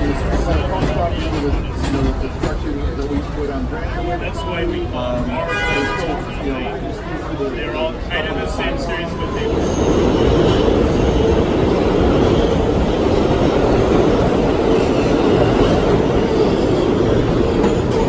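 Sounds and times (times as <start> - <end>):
subway train wheels rumbling on rail: 0.0 - 18.0.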